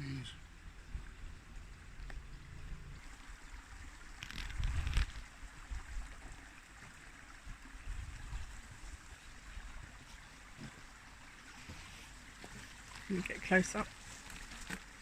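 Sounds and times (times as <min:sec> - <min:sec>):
wind rumble on microphone: 0:00.4 - 0:06.5, 0:07.2 - 0:10.8
microphone handling rustle: 0:04.2 - 0:05.3.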